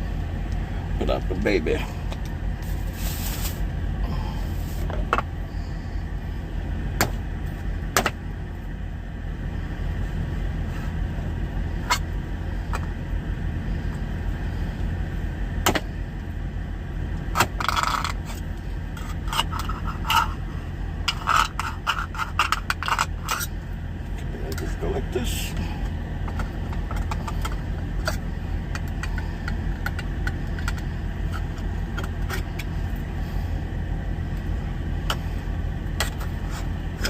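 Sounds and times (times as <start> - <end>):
truck engine idling: 0.0 - 37.0
metal scraping: 17.6 - 23.6.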